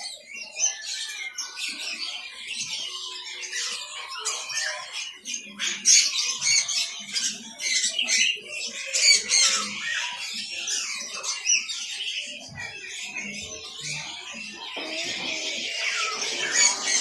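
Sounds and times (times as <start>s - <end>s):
caged birds chirping and squawking: 0.0s - 17.0s.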